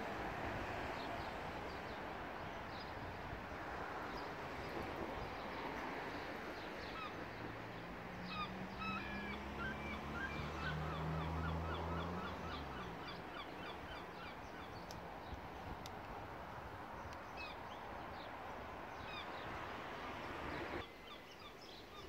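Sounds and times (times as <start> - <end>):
birds chirping: 4.0 - 22.0
outdoor background hiss: 9.4 - 22.0.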